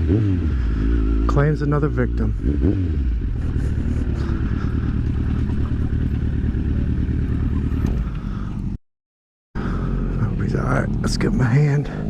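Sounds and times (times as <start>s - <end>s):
motorcycle engine running: 0.0s - 8.8s
road and wind noise: 0.0s - 8.8s, 9.6s - 12.0s.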